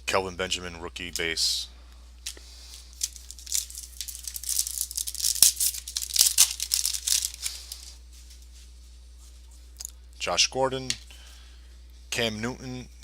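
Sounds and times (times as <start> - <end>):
wrapper tearing and crinkling: 2.9 - 7.9
sharp wrapper snaps: 3.0 - 7.6.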